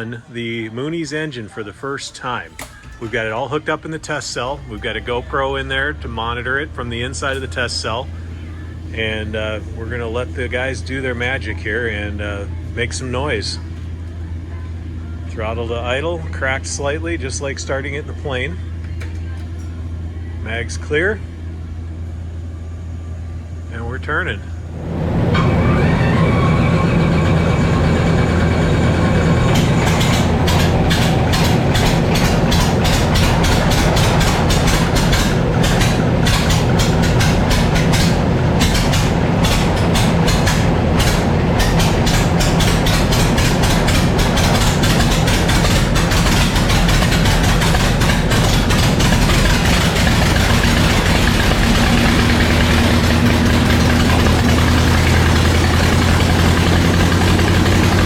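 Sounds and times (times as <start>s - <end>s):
aircraft piston engine idling: 0.0s - 58.0s.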